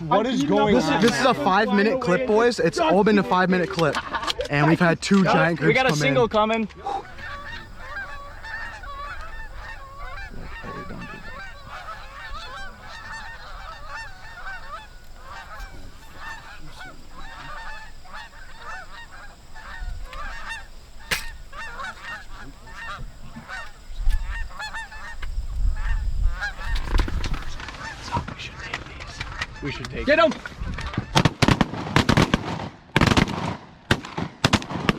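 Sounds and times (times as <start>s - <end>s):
geese honking: 7.0s - 28.0s
sharp click: 21.0s - 21.4s.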